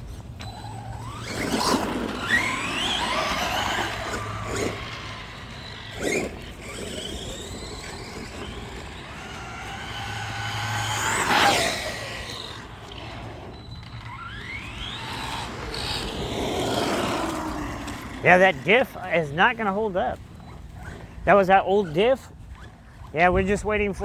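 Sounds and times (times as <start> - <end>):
rc truck motor whine: 0.0 - 19.1, 20.2 - 23.1.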